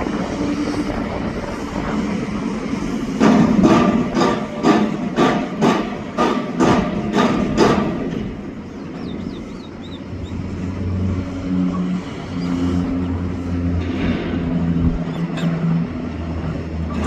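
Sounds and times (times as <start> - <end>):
vehicle engine humming: 7.0 - 17.0.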